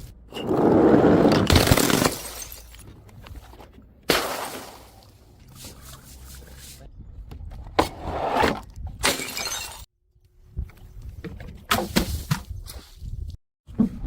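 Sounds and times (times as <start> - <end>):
glass bottles smashing: 1.4 - 2.9, 9.0 - 9.9.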